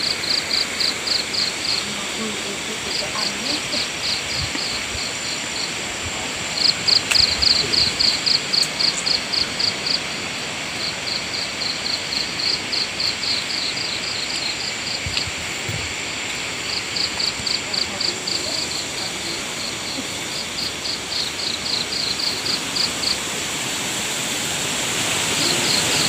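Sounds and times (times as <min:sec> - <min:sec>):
frogs pulsing call: 0:00.0 - 0:23.6, 0:25.0 - 0:26.0
insects trilling: 0:00.0 - 0:26.0.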